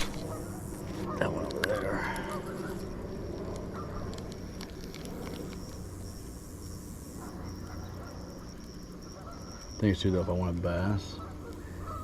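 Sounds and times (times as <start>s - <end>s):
insects droning: 0.0s - 12.0s
low hum: 0.0s - 12.0s
sharp light clicks: 2.8s - 6.4s.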